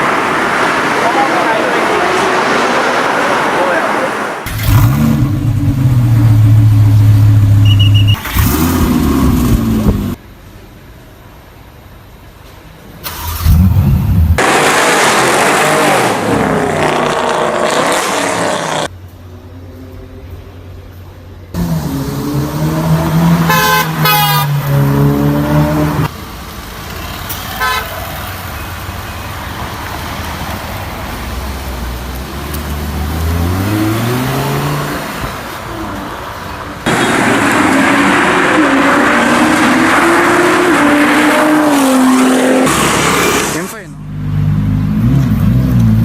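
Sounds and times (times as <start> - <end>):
sports car engines revving: 0.0 - 10.2, 13.3 - 18.9, 21.5 - 26.1, 31.2 - 46.0.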